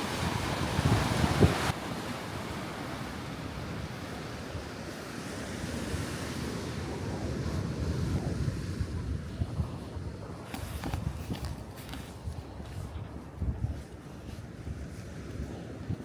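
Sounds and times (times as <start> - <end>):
wind buffeting microphone: 0.0 - 1.8, 5.6 - 16.0
sea surf washing on shore: 0.0 - 16.0.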